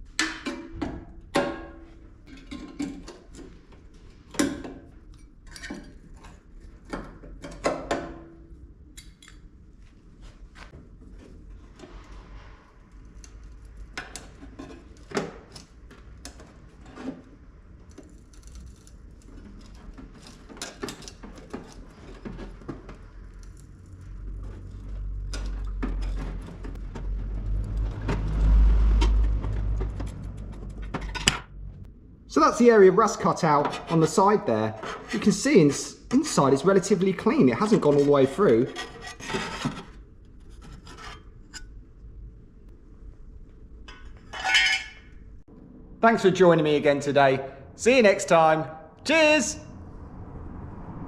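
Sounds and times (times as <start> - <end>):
metallic clicks and clatter: 17.7 - 31.6
low rumble: 23.4 - 32.3, 49.5 - 51.0.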